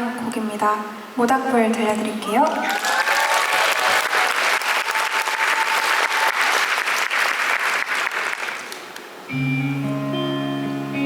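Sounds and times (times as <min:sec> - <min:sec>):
audience applause: 0:02.3 - 0:09.0
guitar playing ringing chords: 0:09.3 - 0:11.0.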